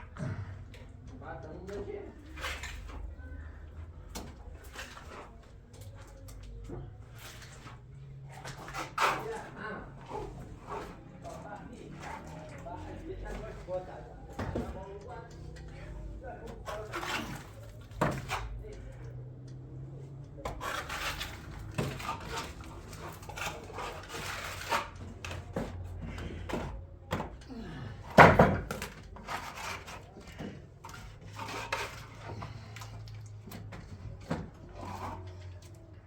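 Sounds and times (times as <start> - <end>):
objects knocking and clattering: 19.1 - 35.9.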